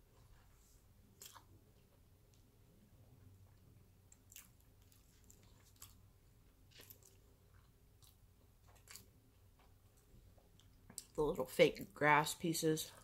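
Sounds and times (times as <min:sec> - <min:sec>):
faint closed-mouth chewing: 0:01.1 - 0:02.5, 0:03.2 - 0:11.2.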